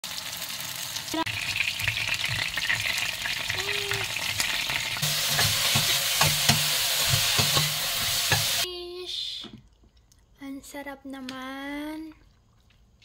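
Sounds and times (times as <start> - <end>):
food sizzling in hot oil: 0.0 - 8.7.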